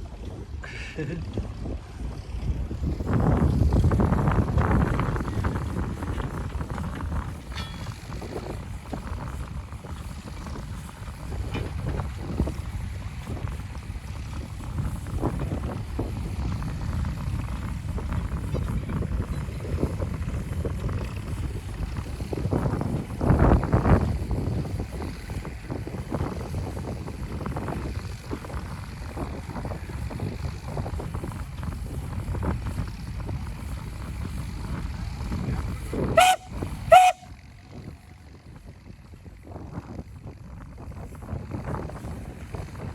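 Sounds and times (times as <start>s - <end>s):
steady low rumble: 0.0s - 42.9s
wind buffeting microphone: 0.0s - 42.9s
steam engine whistle blasts: 36.2s - 37.4s.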